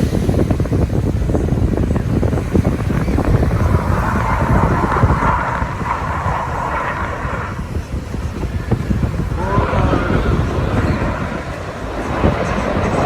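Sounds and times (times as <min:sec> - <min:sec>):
steady rushing noise: 0:00.0 - 0:13.0
wind buffeting microphone: 0:00.0 - 0:13.0.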